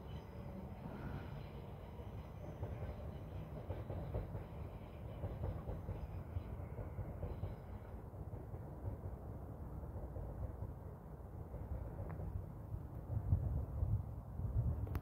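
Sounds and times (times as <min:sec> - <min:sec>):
train rumbling and clattering on rails: 0:00.0 - 0:15.0.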